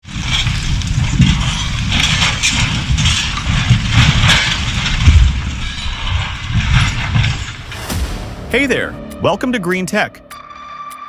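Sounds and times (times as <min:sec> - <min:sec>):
harsh scraping and clanking: 0:03.4 - 0:09.3.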